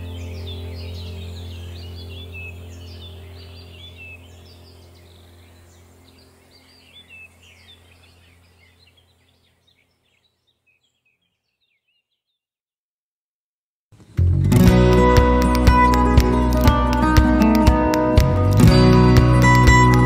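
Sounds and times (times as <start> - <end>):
low steady hum: 0.0 - 9.5
birds chirping: 0.0 - 12.4.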